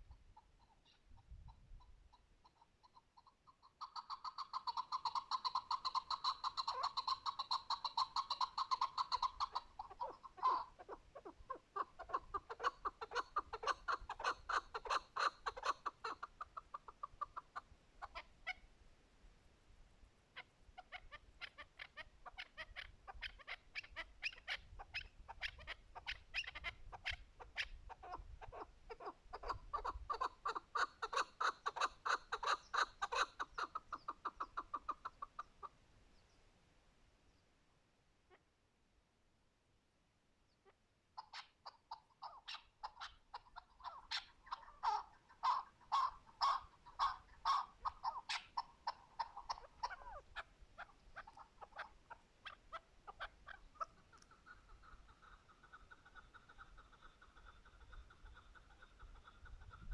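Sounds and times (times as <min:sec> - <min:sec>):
partridge clucking calls: 0:00.0 - 0:18.7, 0:20.3 - 0:35.8, 0:40.5 - 0:59.9.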